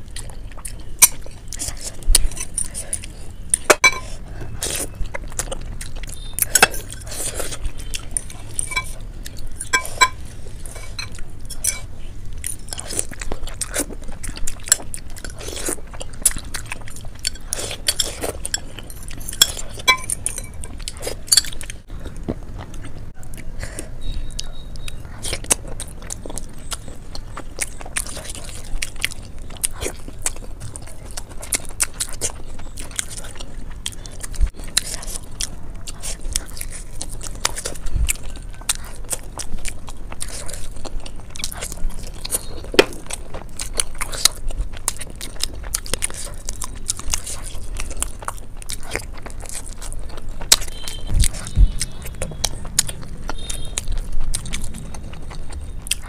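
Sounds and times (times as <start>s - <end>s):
wet chewing: 0.0s - 56.0s
fork clinking on glass bowl: 3.6s - 4.1s, 8.2s - 9.0s, 9.6s - 11.9s, 19.3s - 20.7s.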